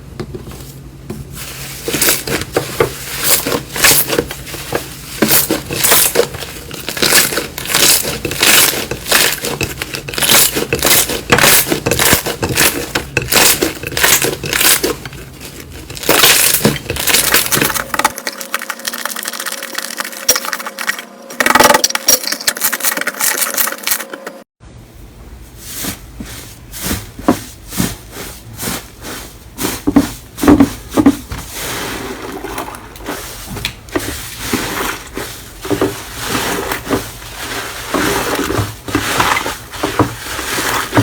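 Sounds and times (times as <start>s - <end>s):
slime crackling and popping: 5.3s - 15.0s.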